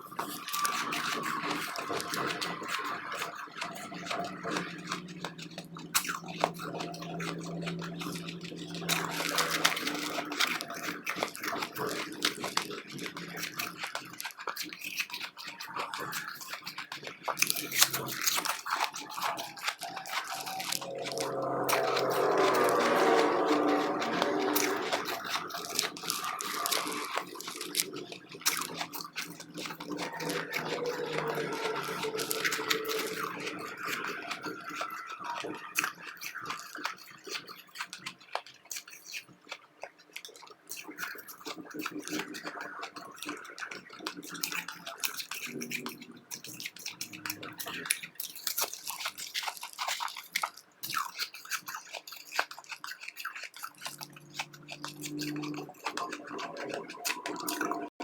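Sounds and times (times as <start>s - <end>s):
chewing ice chips: 0.0s - 58.0s.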